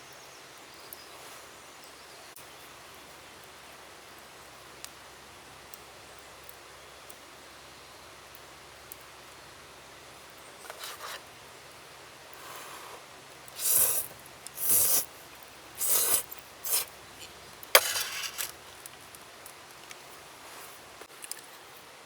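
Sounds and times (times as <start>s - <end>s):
scraping strokes: 13.6s - 15.2s, 15.8s - 19.0s.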